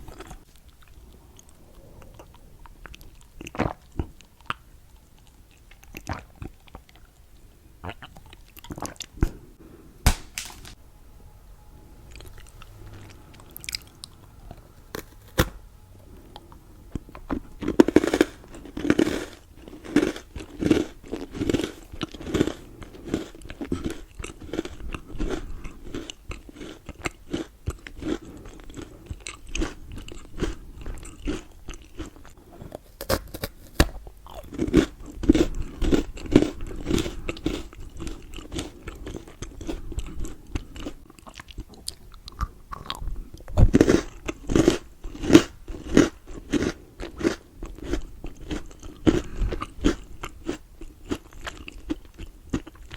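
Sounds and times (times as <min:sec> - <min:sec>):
chewing: 0:00.0 - 0:09.4, 0:12.1 - 0:15.3, 0:16.1 - 0:52.9
chocolate bites snapping: 0:10.0 - 0:10.8.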